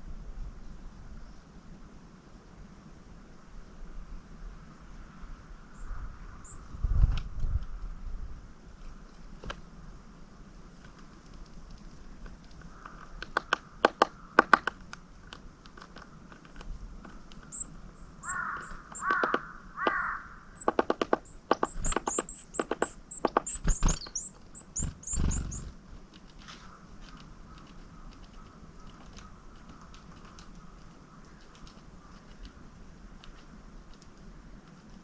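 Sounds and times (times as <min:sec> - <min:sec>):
sharp ticks and taps: 0:12.3 - 0:17.7, 0:18.3 - 0:26.4
crow cawing: 0:12.7 - 0:14.5, 0:18.2 - 0:20.6
high thin calls of small birds: 0:17.4 - 0:25.8.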